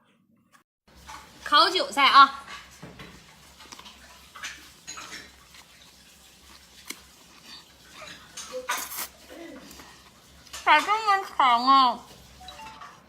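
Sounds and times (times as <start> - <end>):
person chewing: 3.2 - 10.6
utensils tapping dishes: 4.3 - 5.5.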